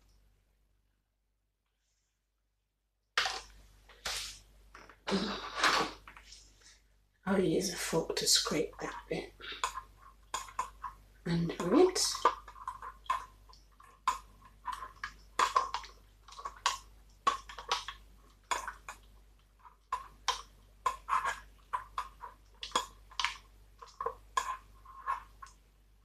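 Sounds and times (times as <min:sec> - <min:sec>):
metal fork scraping a bowl: 0:20.9 - 0:23.0, 0:23.8 - 0:25.5.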